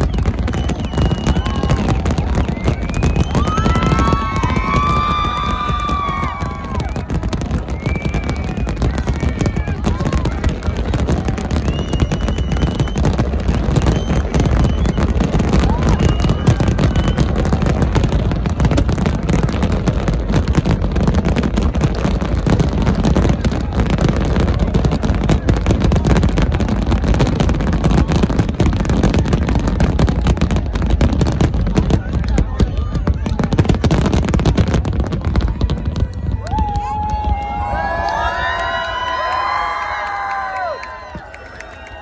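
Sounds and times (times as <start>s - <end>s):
firework whistles: 0.0s - 9.9s, 11.4s - 18.0s
firework shells bursting and crackling: 0.0s - 37.8s
deep rumble of explosions: 0.0s - 38.1s.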